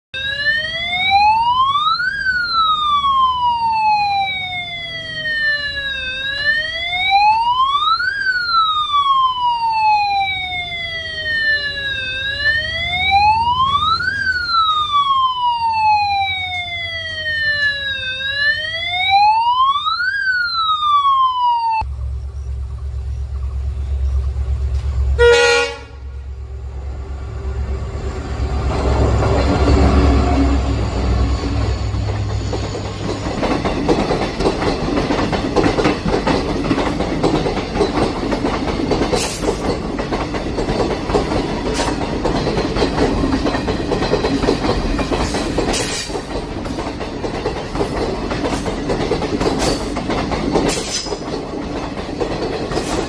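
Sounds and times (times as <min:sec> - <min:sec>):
electric warning siren wailing: 0:00.2 - 0:21.9, 0:25.1 - 0:40.4
loud horn blast: 0:25.1 - 0:26.4.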